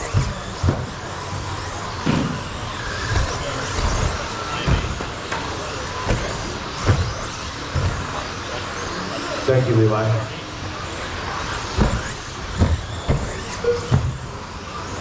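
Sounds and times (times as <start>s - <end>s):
low thuds: 0.0s - 8.4s, 11.7s - 14.4s
rising motor whines: 0.0s - 15.0s
whirring hiss of motors and tyres: 0.0s - 15.0s.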